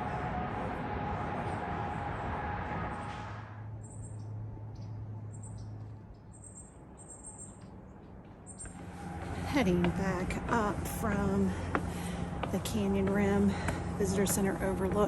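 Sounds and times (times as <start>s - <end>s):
steady rushing noise: 0.0s - 3.8s.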